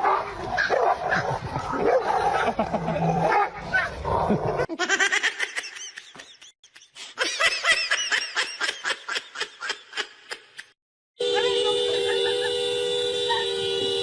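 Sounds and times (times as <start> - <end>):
high-pitched laughter: 4.3 - 10.7.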